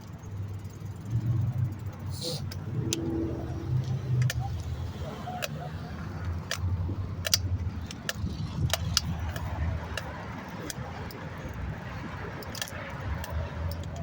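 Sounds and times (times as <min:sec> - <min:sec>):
bicycle rattling and clicking: 0:00.0 - 0:14.0.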